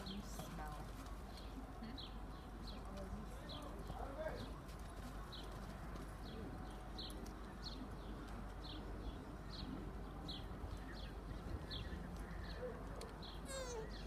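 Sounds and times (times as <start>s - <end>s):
small bird chirping: 10.3s - 14.0s.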